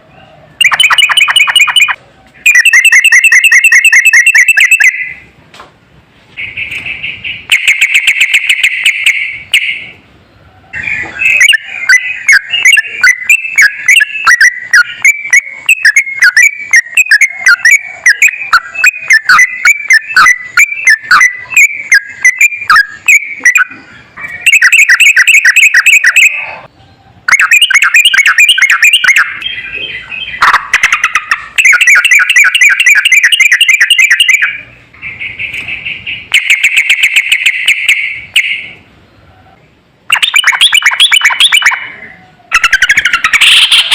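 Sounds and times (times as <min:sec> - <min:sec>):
bird singing whistled notes: 0:10.8 - 0:26.5.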